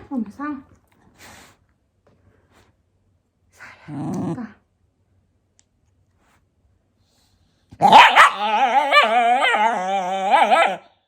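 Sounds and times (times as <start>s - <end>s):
dog growl-whining: 7.8s - 11.0s.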